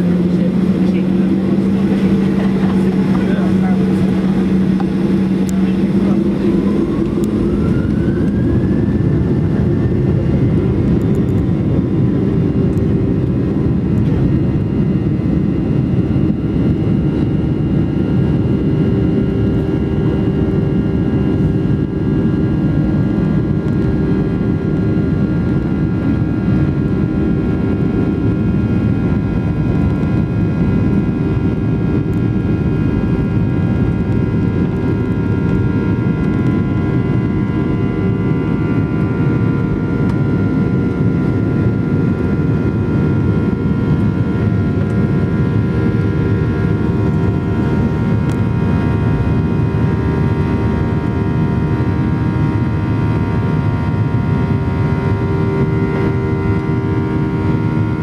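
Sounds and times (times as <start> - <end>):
jet engines whining: 0.0 - 58.0
loud steady rush: 0.0 - 58.0.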